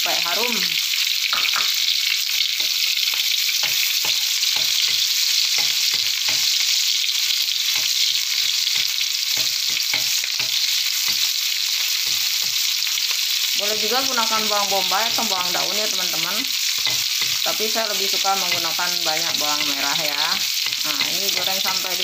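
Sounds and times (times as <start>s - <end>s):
shallots and garlic sizzling in oil: 0.0s - 22.0s
metal spatula scraping a wok: 16.6s - 17.6s.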